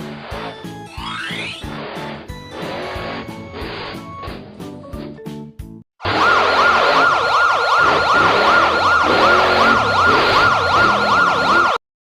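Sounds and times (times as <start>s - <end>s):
siren yelping: 6.0s - 11.8s.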